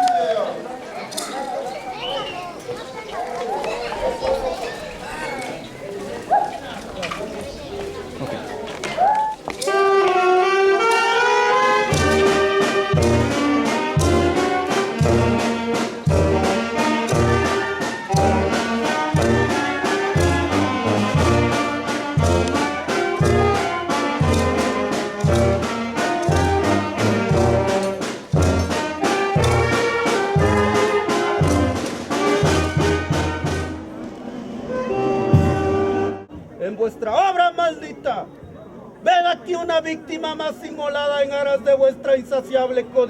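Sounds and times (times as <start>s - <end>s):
trumpets and trombones playing: 9.6s - 36.3s
bass and drums beat: 11.9s - 33.7s.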